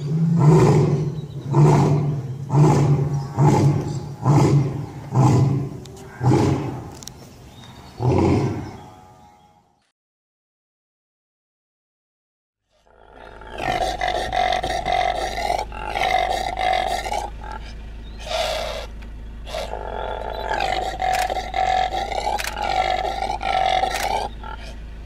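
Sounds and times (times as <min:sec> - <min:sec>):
impala drawn-out calls: 0:00.0 - 0:07.0, 0:12.8 - 0:24.9.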